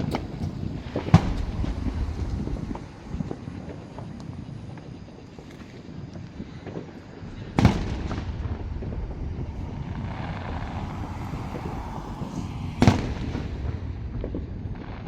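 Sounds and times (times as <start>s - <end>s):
firework bang: 0.0s - 4.2s, 6.7s - 15.0s
low rumble: 0.0s - 4.2s, 7.2s - 15.0s
hissing crackle: 0.0s - 15.0s.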